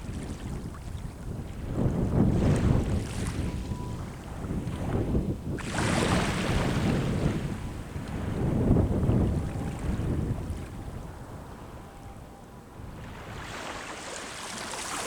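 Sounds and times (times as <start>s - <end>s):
sea waves at shore: 0.0s - 15.0s
wind rumbling on microphone: 0.0s - 15.0s
wave breaking and washing up: 12.9s - 15.0s.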